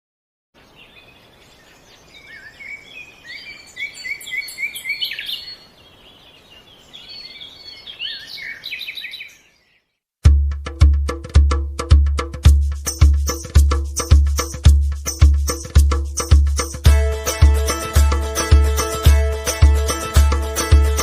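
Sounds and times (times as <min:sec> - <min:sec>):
small birds chirping: 0:00.6 - 0:10.0
music with heavy drum beat: 0:10.2 - 0:21.0.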